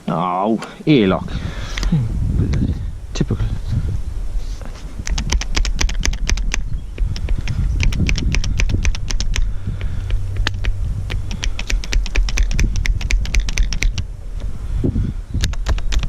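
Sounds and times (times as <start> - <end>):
grease gun clicking: 5.0 - 14.0.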